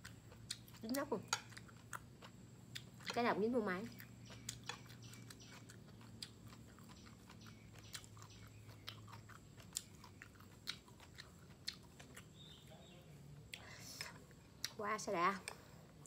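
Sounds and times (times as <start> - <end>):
person chewing: 0.0 - 12.7, 13.4 - 14.8
faint low hum: 0.0 - 16.0.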